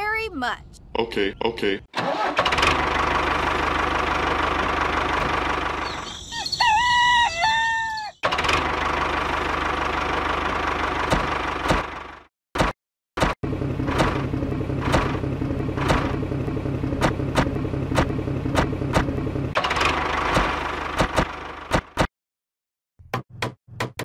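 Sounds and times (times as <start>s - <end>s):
engine knocks: 2.0s - 6.0s, 8.2s - 22.1s
small engine humming: 2.0s - 6.3s.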